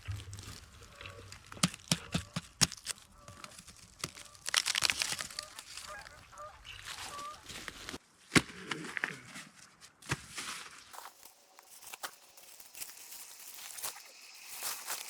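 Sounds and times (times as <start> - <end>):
waterfowl honking: 0.0 - 2.4, 5.1 - 7.7
sharp crunching clicks: 0.0 - 6.9.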